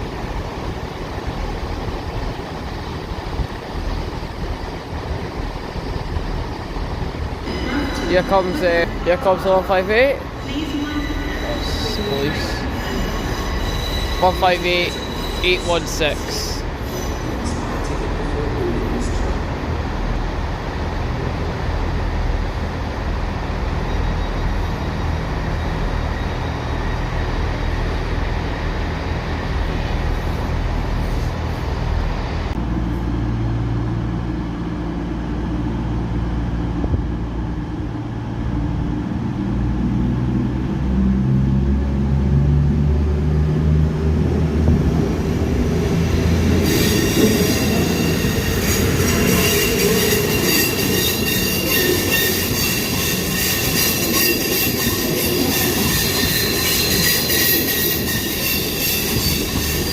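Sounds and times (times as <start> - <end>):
diesel train engine: 0.0 - 59.9
train wheels on rails: 0.0 - 59.9
high-pitched wheel squeal: 9.6 - 17.6, 46.6 - 59.9.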